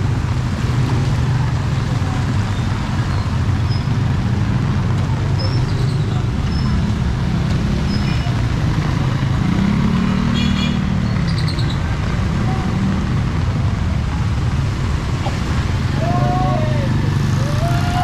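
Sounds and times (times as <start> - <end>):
street noise: 0.0 - 18.0.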